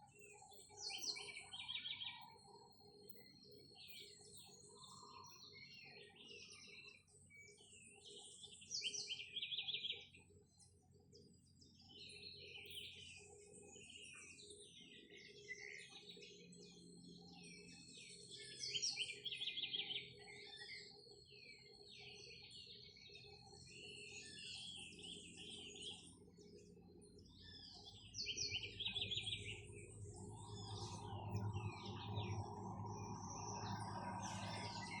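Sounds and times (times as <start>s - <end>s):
birds chirping and calling: 11.8s - 35.0s.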